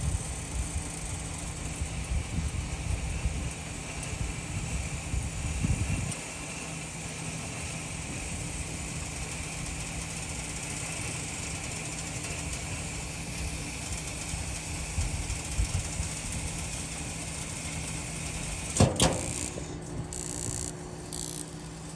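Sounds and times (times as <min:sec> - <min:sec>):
pool heater humming and hissing: 0:00.0 - 0:21.9
sharp clack: 0:18.8 - 0:19.7.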